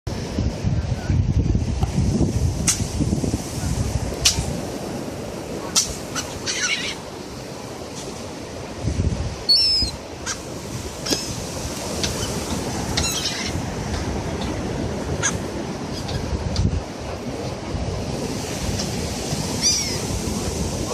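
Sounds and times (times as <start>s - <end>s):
wind and surf rumble: 0.1s - 20.9s
seagulls calling: 5.8s - 7.0s, 9.5s - 10.4s, 11.0s - 13.6s, 19.5s - 20.1s.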